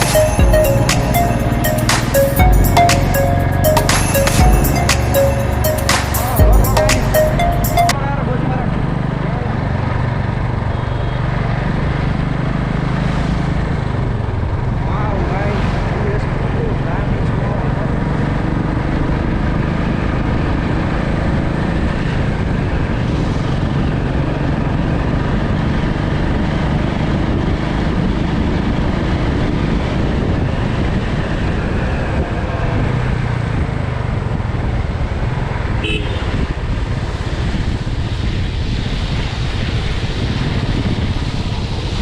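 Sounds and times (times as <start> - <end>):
short high tone: 0.0 - 8.3.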